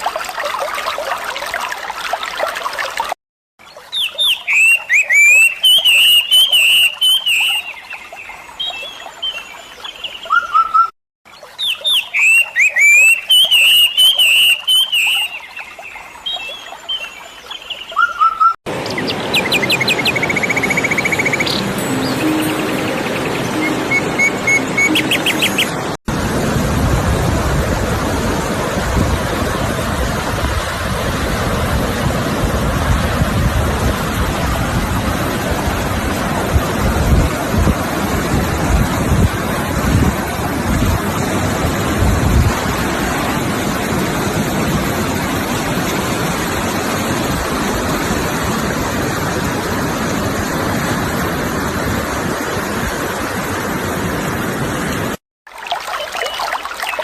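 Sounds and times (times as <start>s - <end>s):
rushing water: 0.0s - 57.0s
music: 21.6s - 25.8s.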